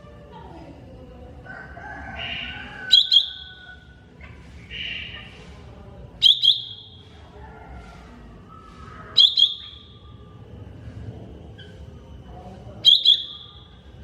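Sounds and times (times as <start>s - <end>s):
bird warbling: 2.1s - 5.4s, 8.8s - 10.1s
sharp bird notes and whistle: 2.2s - 3.8s, 4.6s - 5.3s, 6.2s - 7.0s, 8.6s - 10.1s, 12.8s - 13.8s.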